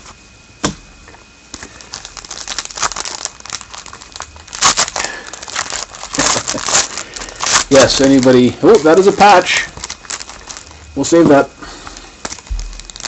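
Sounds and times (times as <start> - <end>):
wrapper tearing and crinkling: 1.5 - 13.0.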